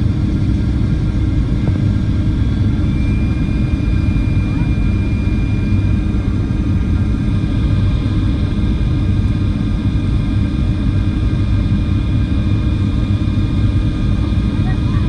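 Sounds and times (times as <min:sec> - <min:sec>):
airplane cabin rumble: 0:00.0 - 0:15.0
faint whining tones: 0:02.8 - 0:06.4.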